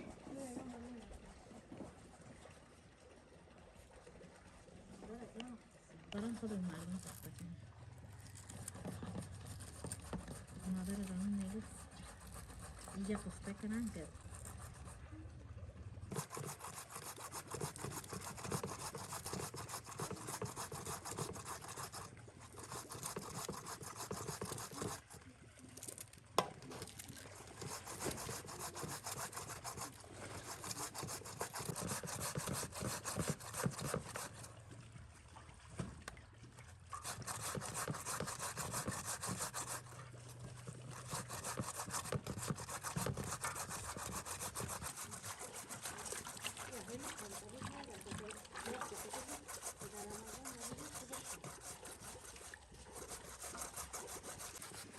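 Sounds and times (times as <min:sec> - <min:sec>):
scraping on hard surface: 0:08.4 - 0:14.9, 0:16.1 - 0:25.1, 0:26.7 - 0:34.5, 0:37.0 - 0:54.9.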